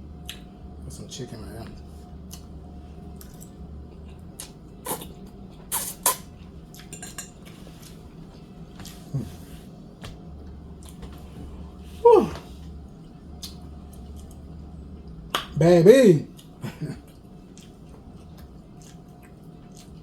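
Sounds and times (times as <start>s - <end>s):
steady low hum: 0.0s - 20.0s
utensils clinking against dish: 6.8s - 7.5s.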